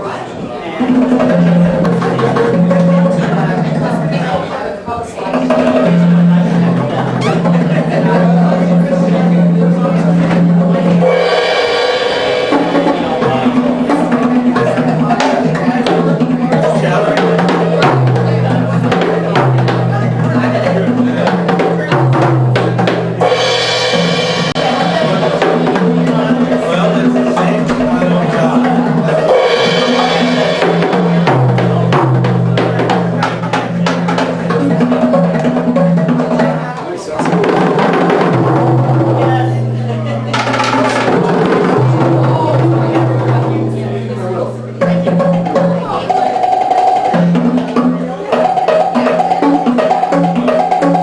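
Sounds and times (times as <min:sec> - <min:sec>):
steady held tones: 0:00.0 - 0:51.0
drum and percussion music: 0:00.6 - 0:51.0
sharp strikes: 0:21.1 - 0:27.6.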